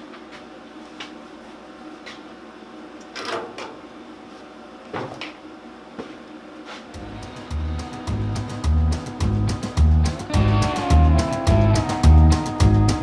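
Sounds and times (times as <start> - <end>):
steady hum: 6.9 - 13.0
music with strong beat: 7.0 - 13.0.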